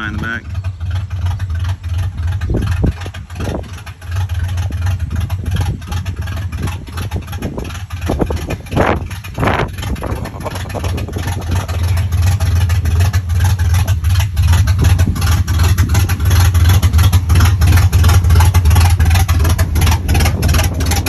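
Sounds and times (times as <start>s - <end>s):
truck engine rumbling: 0.0s - 21.0s.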